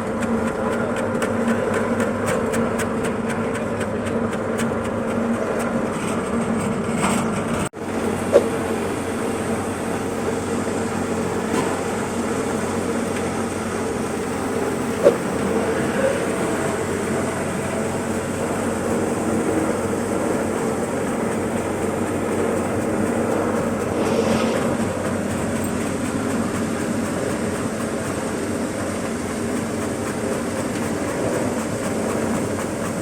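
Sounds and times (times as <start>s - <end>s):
slicing machine humming: 0.0s - 33.0s
rapid ticking: 12.4s - 33.0s
sharp knocks: 15.0s - 15.5s.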